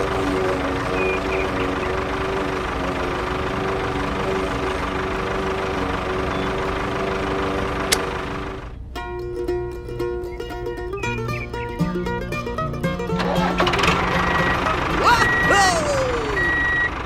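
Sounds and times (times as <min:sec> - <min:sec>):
engine running steadily: 0:00.0 - 0:17.0
sharp click: 0:07.9 - 0:08.1.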